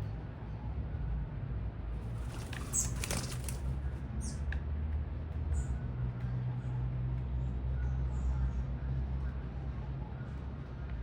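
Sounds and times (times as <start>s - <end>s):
city traffic rumble: 0.0s - 11.0s
small birds chirping: 2.1s - 4.4s.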